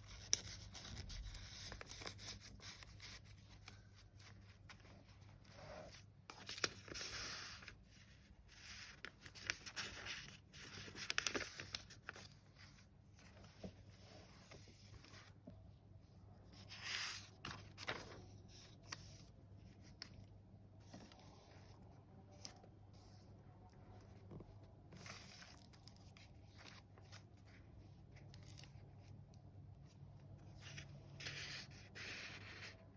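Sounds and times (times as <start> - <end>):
paper pages rustling: 0.1 - 7.8, 8.5 - 15.5, 16.5 - 21.8, 24.2 - 27.6.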